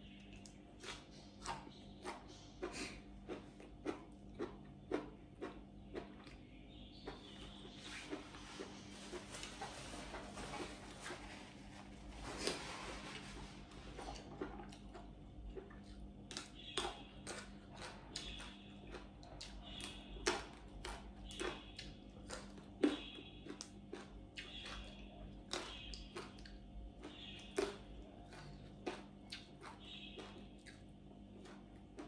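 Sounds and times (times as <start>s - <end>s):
low steady hum: 0.0s - 32.0s
chewing and lip smacks: 0.1s - 6.4s, 13.8s - 32.0s.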